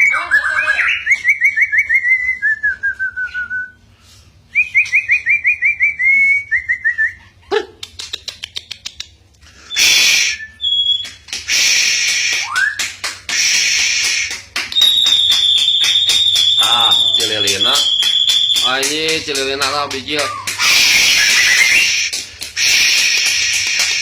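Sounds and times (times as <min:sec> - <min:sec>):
bird whistling song: 0:00.0 - 0:03.8, 0:09.7 - 0:19.2, 0:20.1 - 0:24.0
bird harsh hissing notes: 0:09.6 - 0:10.4, 0:11.5 - 0:12.5, 0:13.4 - 0:14.3, 0:20.6 - 0:24.0.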